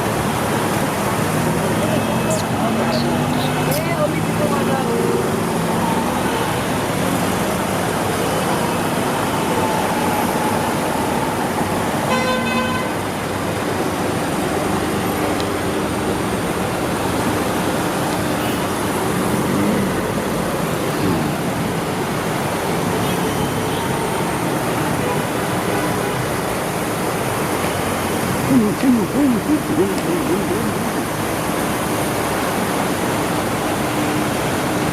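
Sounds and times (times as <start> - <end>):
road traffic: 0.0 - 34.9.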